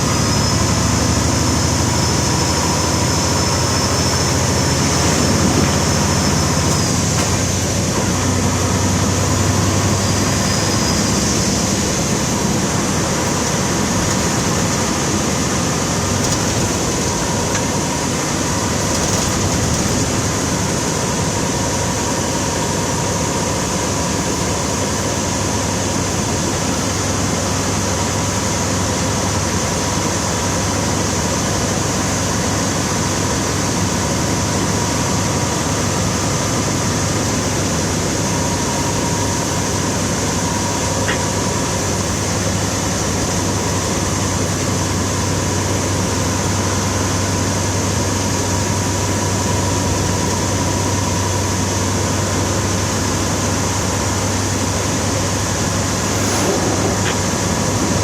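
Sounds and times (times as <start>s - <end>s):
vehicle engine running: 0.0s - 31.9s.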